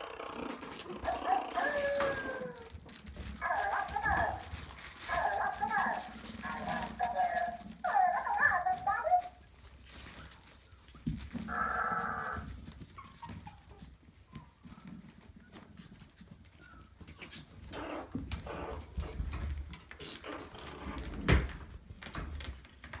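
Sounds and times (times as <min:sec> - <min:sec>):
puppy crying: 0:00.0 - 0:04.4
shuffling and handling noises: 0:00.0 - 0:23.0.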